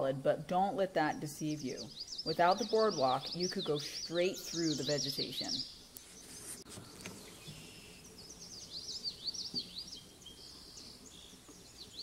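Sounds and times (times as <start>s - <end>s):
faint outdoor background: 0.0s - 12.0s
songbird chirping: 0.0s - 12.0s.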